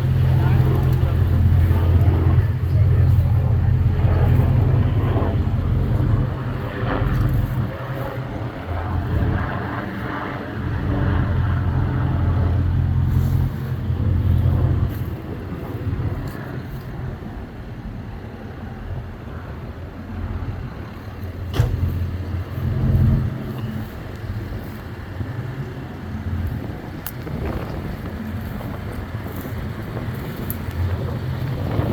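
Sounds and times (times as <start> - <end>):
pickup engine drone: 0.0 - 31.9.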